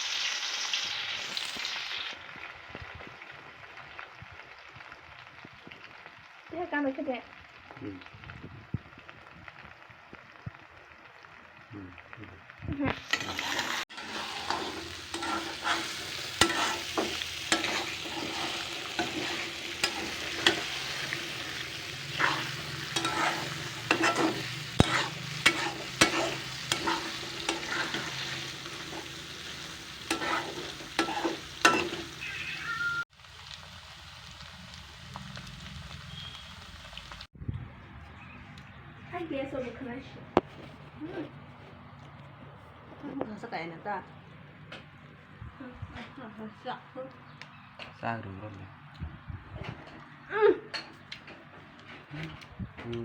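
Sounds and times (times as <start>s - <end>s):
food sizzling in a pan: 0.0s - 37.3s
utensil clicking and scraping pan: 13.0s - 32.2s.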